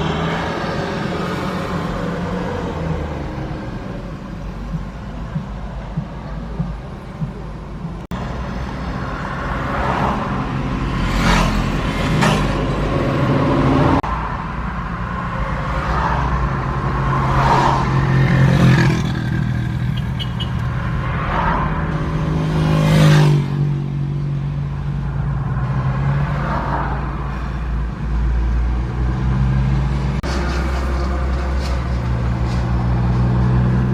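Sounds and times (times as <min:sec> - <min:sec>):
vehicle engine humming: 0:00.0 - 0:33.9.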